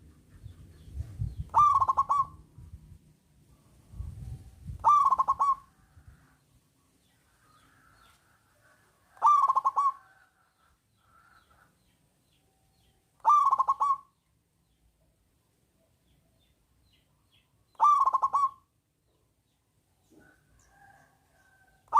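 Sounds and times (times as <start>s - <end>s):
dove cooing: 1.4s - 2.5s, 4.7s - 6.0s, 9.1s - 10.2s, 13.2s - 14.1s, 17.7s - 18.6s.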